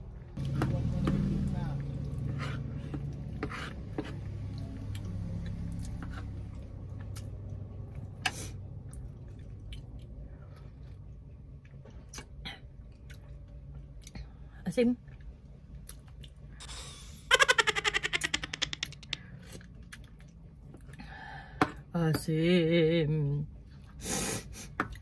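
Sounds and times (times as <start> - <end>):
low steady hum: 0.0 - 25.0
person chewing food: 1.9 - 14.2, 15.1 - 16.8, 18.8 - 21.0
wet mouth clicks and smacks: 18.3 - 20.4.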